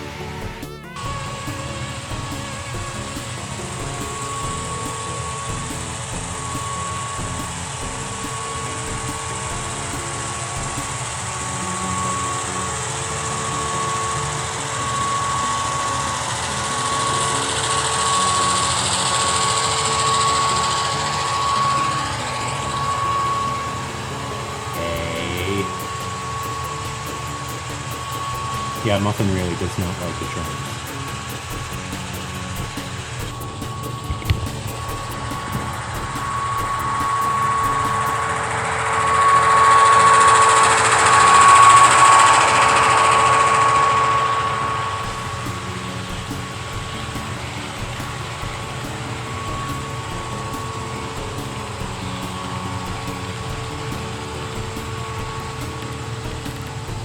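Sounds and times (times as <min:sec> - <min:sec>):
model locomotive diesel engine sound: 0:00.0 - 0:57.0
motor whine: 0:00.0 - 0:57.0
wheels hissing on track: 0:00.0 - 0:57.0.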